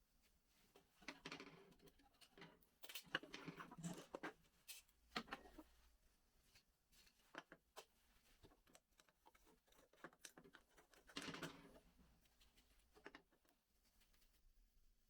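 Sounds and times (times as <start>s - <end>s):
small parts clicking and tapping: 1.0s - 5.5s, 7.1s - 11.9s.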